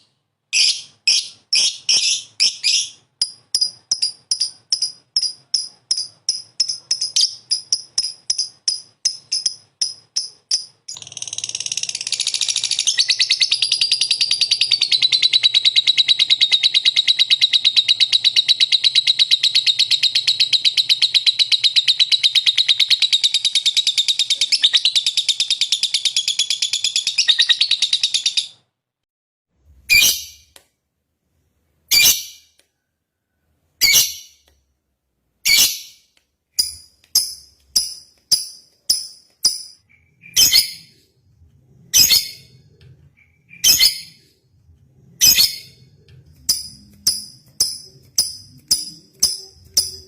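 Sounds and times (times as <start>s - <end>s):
lovebird chirping and trilling: 0.5s - 28.6s, 29.9s - 30.5s, 31.9s - 32.6s, 33.8s - 34.5s, 35.4s - 44.4s, 45.0s - 50.0s.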